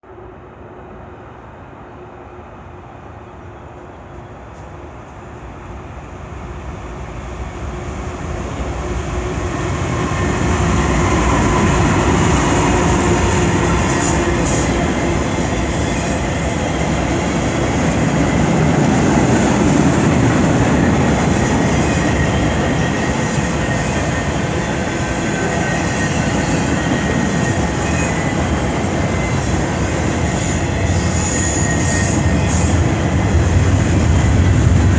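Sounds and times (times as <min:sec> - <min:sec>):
train wheels rumbling on rails: 0:02.2 - 0:34.9
faint high wheel squeal: 0:25.4 - 0:33.0.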